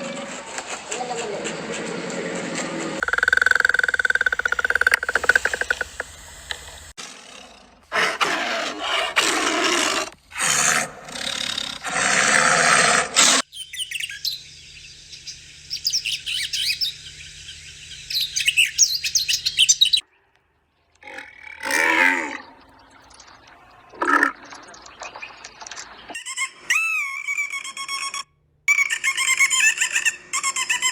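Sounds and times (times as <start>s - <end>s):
birds chirping rapidly: 13.4s - 26.2s.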